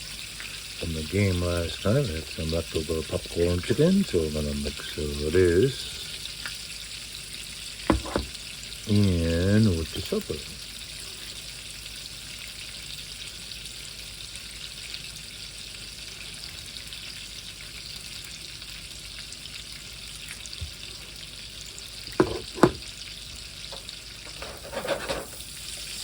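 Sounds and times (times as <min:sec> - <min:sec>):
food sizzling in a pan: 0:00.0 - 0:26.0
sharp knocks: 0:07.9 - 0:08.3.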